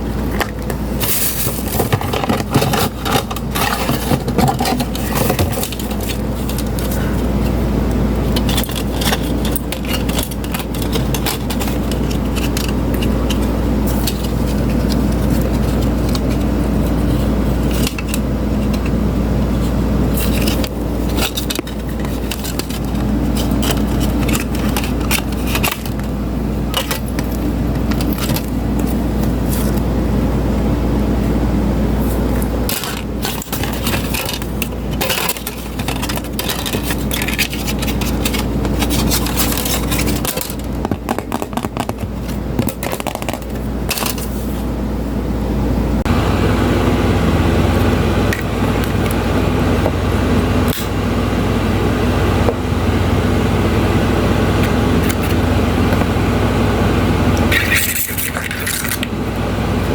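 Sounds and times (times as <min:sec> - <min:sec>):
small electric fan motor humming: 0:00.0 - 0:59.9
sharp clicks and rattles: 0:01.4 - 0:07.3, 0:08.2 - 0:19.0, 0:20.0 - 0:29.6, 0:32.7 - 0:44.3.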